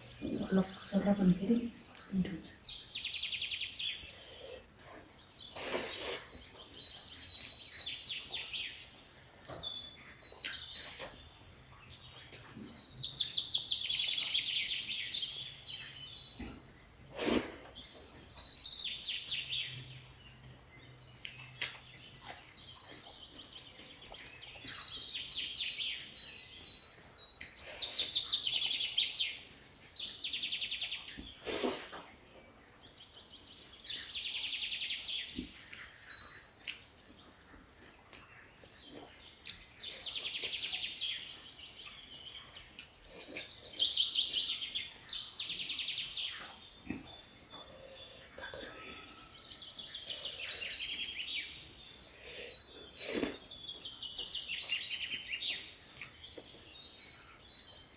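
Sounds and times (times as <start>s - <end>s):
bird singing trilled phrases: 38.6s - 57.9s.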